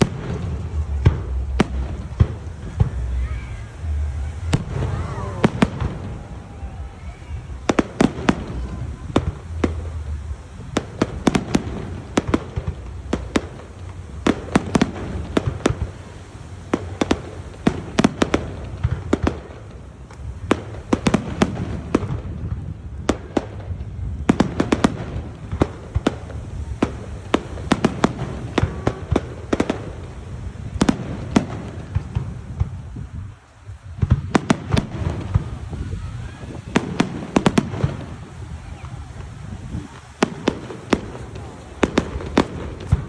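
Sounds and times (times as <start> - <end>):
low rumble: 0.0 - 10.7
fireworks bangs and cracks: 0.0 - 43.0.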